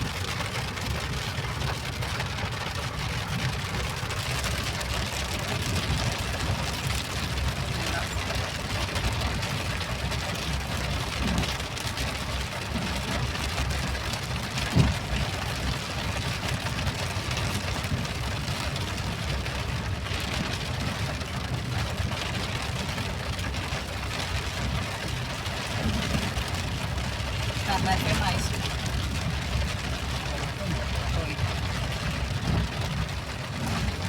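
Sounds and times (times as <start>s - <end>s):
steady rain hiss: 0.0s - 14.5s, 15.1s - 34.0s
low flickering rumble: 15.1s - 34.0s.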